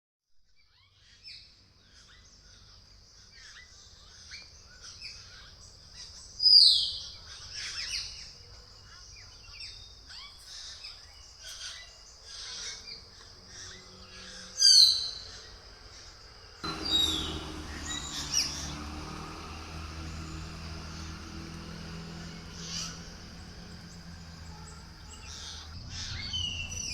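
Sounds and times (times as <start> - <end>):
birds chirping and singing: 16.6 - 26.9
loud falling bird calls: 16.6 - 26.9.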